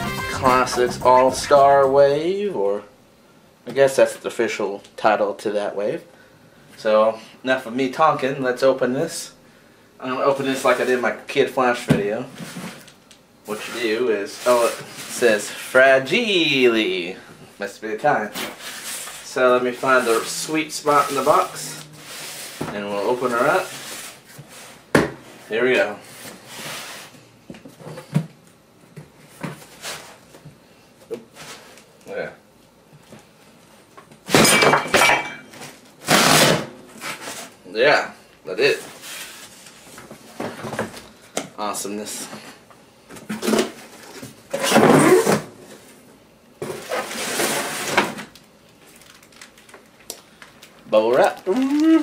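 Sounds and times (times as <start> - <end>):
cardboard rustling: 18.3 - 24.4.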